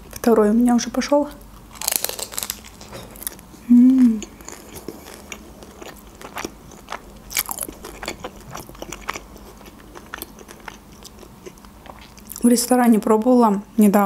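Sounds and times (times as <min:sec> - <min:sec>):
person chewing food: 0:01.5 - 0:12.4.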